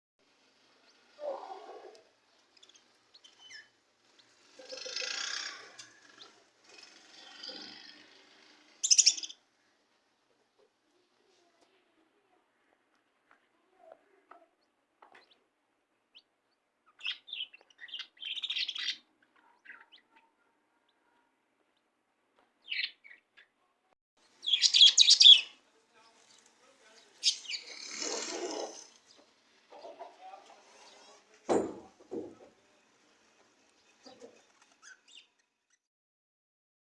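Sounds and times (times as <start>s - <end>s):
budgies chirping and chattering: 2.6s - 9.4s, 16.1s - 20.4s, 22.6s - 23.5s, 24.4s - 25.6s, 26.3s - 31.2s, 33.8s - 35.5s
budgerigars chirping: 8.8s - 9.4s, 16.1s - 19.0s, 22.6s - 23.5s, 24.4s - 25.5s, 27.0s - 29.1s.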